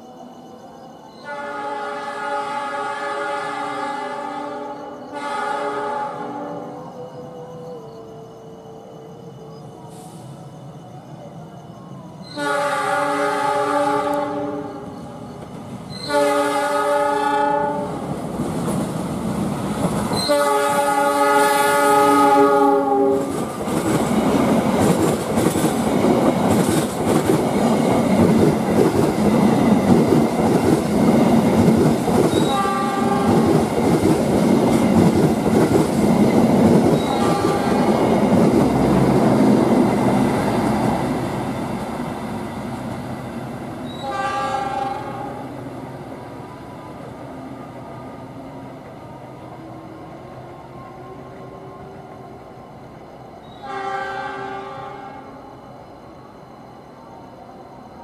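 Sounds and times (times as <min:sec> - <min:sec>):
train carriages rumbling past: 0:00.0 - 0:55.6
diesel locomotive horn blasts: 0:01.2 - 0:06.8, 0:12.3 - 0:15.0, 0:16.0 - 0:18.0, 0:20.2 - 0:23.3, 0:32.4 - 0:33.4, 0:37.0 - 0:38.0, 0:43.8 - 0:45.5, 0:53.5 - 0:55.4.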